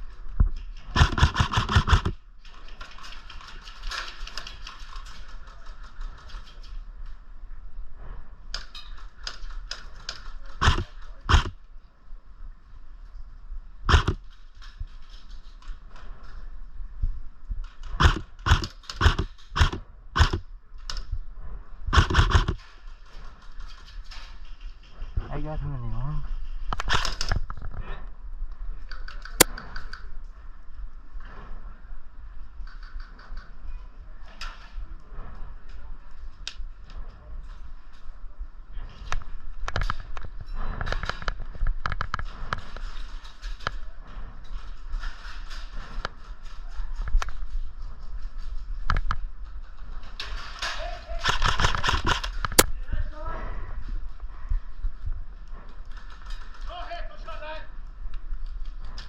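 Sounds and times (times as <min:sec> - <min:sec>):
airsoft guns firing: 0:00.9 - 0:02.2, 0:10.5 - 0:11.6, 0:13.9 - 0:14.2, 0:17.9 - 0:20.4, 0:21.9 - 0:22.6
low rumble of wind on microphone: 0:06.0 - 0:50.6, 0:51.4 - 0:56.6.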